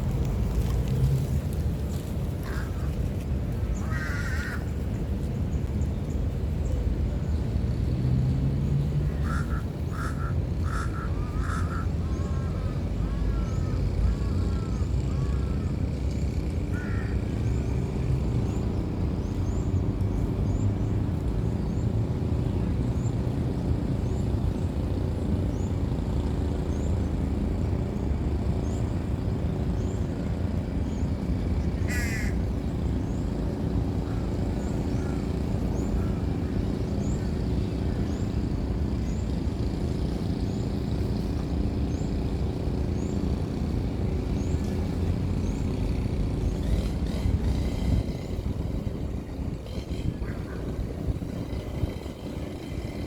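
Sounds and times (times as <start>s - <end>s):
steady low rumble: 0.0s - 7.6s.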